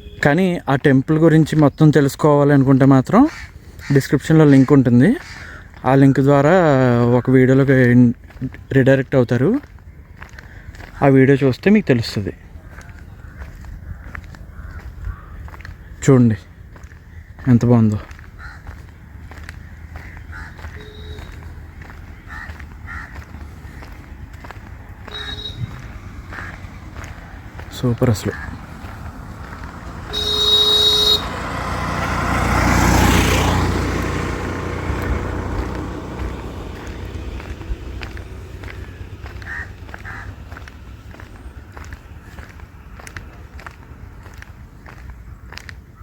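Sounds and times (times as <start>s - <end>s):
vehicle horn honking: 0.0s - 0.5s, 20.7s - 21.6s, 25.0s - 26.6s, 29.9s - 32.5s
motor vehicle passing: 1.1s - 46.0s.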